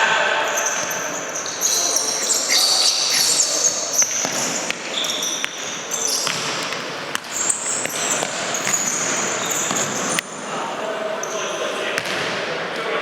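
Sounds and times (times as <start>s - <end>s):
shoes squeaking on court floor: 0.4s - 10.5s.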